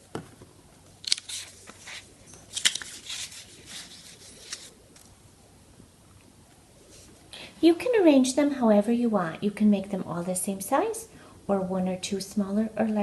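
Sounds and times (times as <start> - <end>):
paper rustling and crinkling: 1.1 - 5.1.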